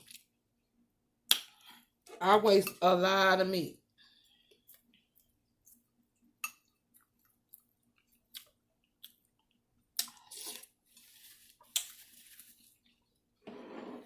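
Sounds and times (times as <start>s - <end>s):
person chewing food: 4.1s - 13.3s.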